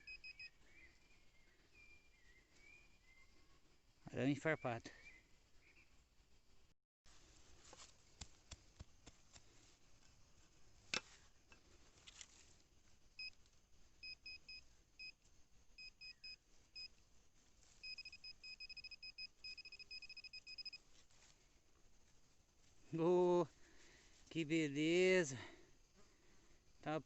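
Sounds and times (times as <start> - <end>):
metal detector beeps: 0.0 - 0.6, 14.0 - 15.2, 15.8 - 16.9, 17.8 - 20.8.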